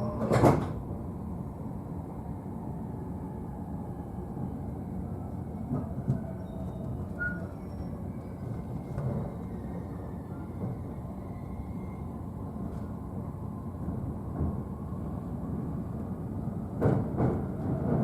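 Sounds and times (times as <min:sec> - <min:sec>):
train knocks: 0:00.0 - 0:00.8, 0:16.7 - 0:18.0
train wheels rumbling on rail: 0:00.0 - 0:18.0.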